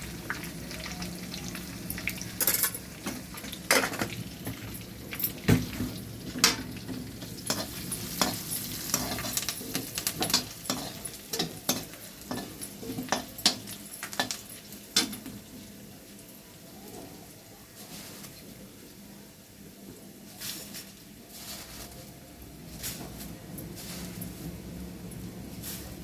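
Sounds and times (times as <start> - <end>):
food sizzling in a pan: 0.0 - 19.8
spoon scraping a pan: 5.7 - 15.3.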